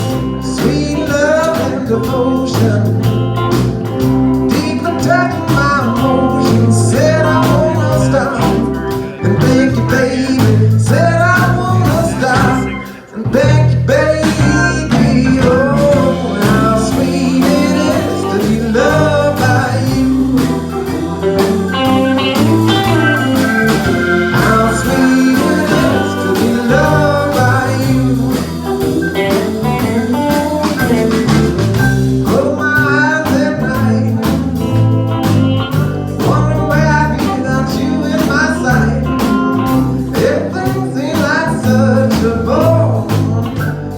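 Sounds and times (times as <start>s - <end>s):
person singing: 0.0s - 34.6s, 36.2s - 43.9s
band playing blues song: 0.0s - 43.9s.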